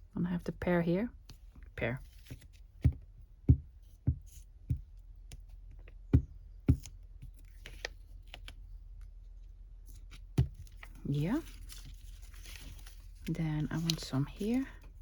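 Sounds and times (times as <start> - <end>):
soft thuds and taps on desk: 2.3 - 6.9, 10.4 - 10.6
paper clicks and rustles: 9.9 - 15.0.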